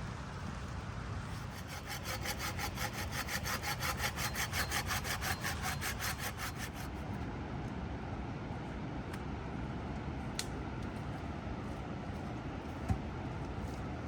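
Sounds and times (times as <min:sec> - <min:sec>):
hand saw cutting wood: 0:01.3 - 0:07.0.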